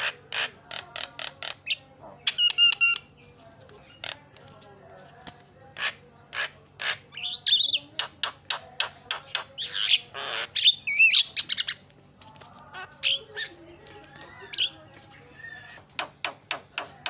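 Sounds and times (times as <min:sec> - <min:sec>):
myna calling: 0:00.0 - 0:03.2, 0:05.7 - 0:17.0.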